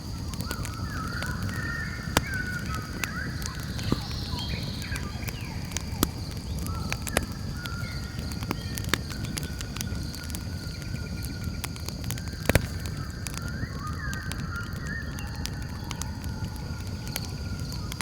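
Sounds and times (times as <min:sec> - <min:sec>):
birds calling whistled notes: 0:00.0 - 0:18.0
campfire crackling and popping: 0:00.0 - 0:18.0
insect trill: 0:00.0 - 0:18.0.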